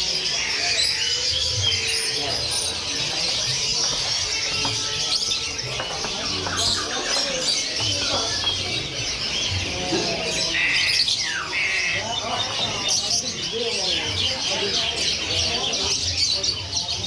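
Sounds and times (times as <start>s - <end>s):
songbirds chirping and trilling: 0.0s - 17.0s.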